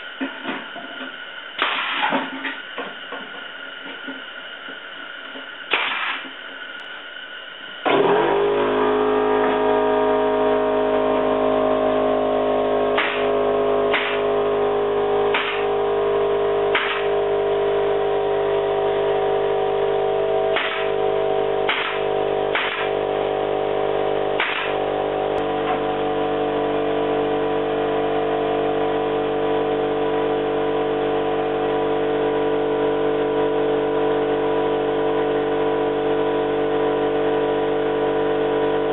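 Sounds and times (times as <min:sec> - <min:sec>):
air compressor running: 0:00.0 - 0:38.9
nail gun firing: 0:01.6 - 0:02.2, 0:05.7 - 0:06.3, 0:13.0 - 0:14.3, 0:15.3 - 0:15.8, 0:16.7 - 0:17.2, 0:20.5 - 0:21.0, 0:21.7 - 0:23.0, 0:24.4 - 0:24.8.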